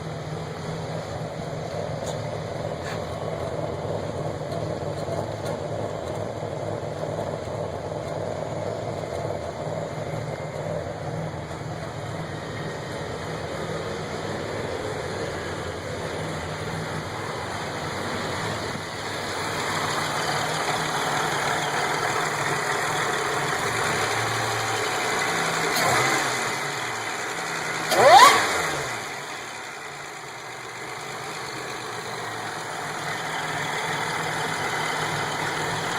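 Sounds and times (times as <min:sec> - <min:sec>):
car engine idling: 0:00.0 - 0:35.9
engine revving with rising whine: 0:23.5 - 0:29.6.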